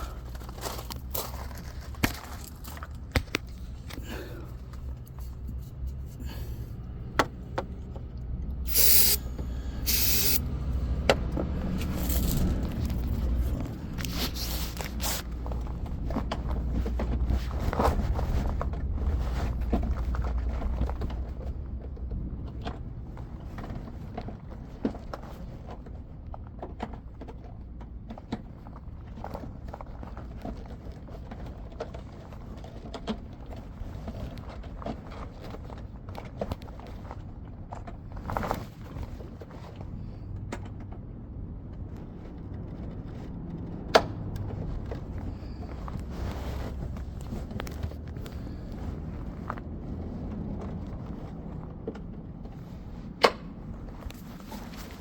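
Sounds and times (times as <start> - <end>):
spray can hissing: 8.7 - 9.3, 9.9 - 10.4.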